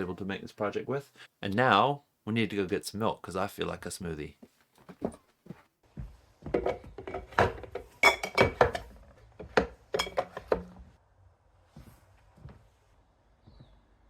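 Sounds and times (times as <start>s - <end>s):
glassware clinking: 8.0s - 8.8s, 10.0s - 10.4s.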